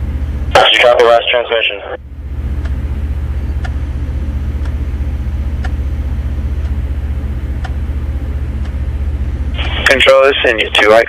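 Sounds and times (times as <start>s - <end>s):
faint ticking: 2.5s - 3.9s, 4.5s - 5.9s, 6.5s - 7.8s.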